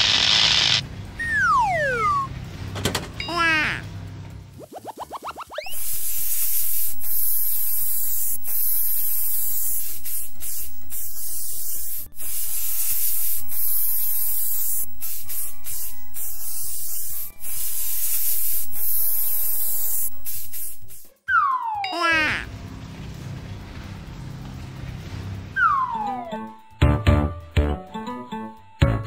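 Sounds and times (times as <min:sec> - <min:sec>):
spray paint hiss: 0:00.0 - 0:00.8, 0:04.6 - 0:21.2.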